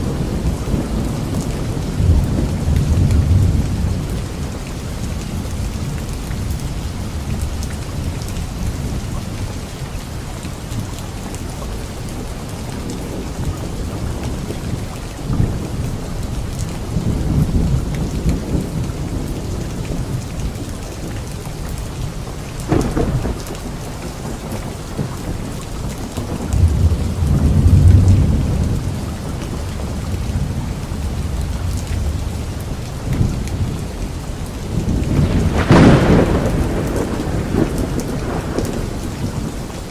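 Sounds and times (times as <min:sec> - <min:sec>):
low rolling thunder: 0:00.0 - 0:09.2, 0:12.1 - 0:39.9
rain falling on leaves: 0:00.0 - 0:39.9
sharp thunderclap: 0:22.7 - 0:33.7, 0:34.6 - 0:39.6.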